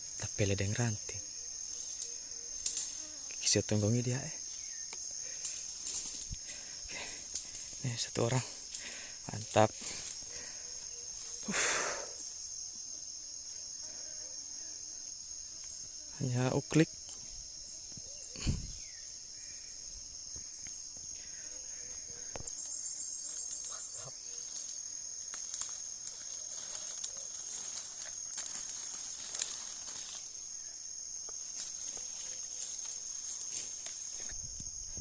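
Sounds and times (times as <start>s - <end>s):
insects droning: 0.0s - 35.0s
sharp ticks and rustles: 1.8s - 3.0s, 4.9s - 6.6s, 7.2s - 8.9s, 24.4s - 30.3s.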